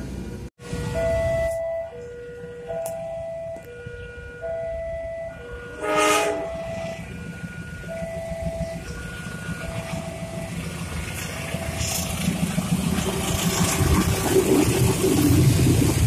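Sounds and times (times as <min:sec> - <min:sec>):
low engine rumble: 0:00.0 - 0:16.0
train horn blasts: 0:05.5 - 0:10.1.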